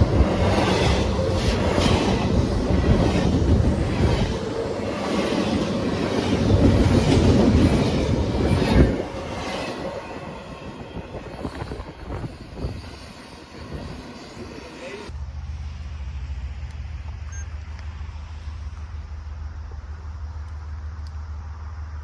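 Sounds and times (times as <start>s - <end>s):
train wheels clattering over rails: 0.0s - 14.4s.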